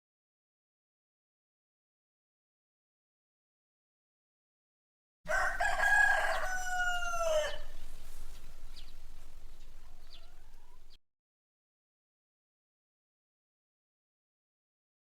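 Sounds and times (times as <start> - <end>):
faint short chicken calls: 5.3 - 8.9, 9.7 - 11.0
rooster crowing: 5.3 - 11.0.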